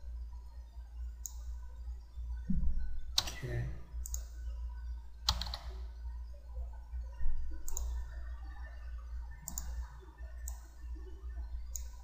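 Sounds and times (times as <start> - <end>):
low electrical hum: 0.0 - 12.0
computer mouse clicks: 1.2 - 1.5, 3.1 - 3.4, 4.0 - 4.3, 5.2 - 5.8, 7.6 - 8.0, 9.4 - 10.7, 11.7 - 12.0.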